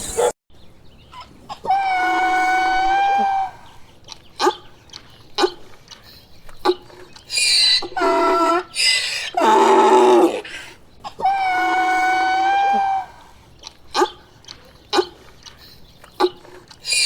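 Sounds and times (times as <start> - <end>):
donkey braying: 1.1 - 3.8, 6.6 - 15.2, 16.2 - 17.0.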